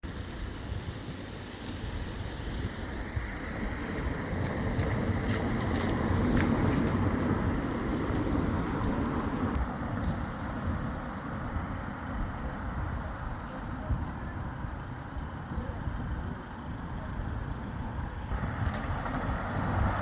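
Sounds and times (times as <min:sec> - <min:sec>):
vehicle passing on wet road: 0:01.6 - 0:10.6, 0:18.3 - 0:20.0.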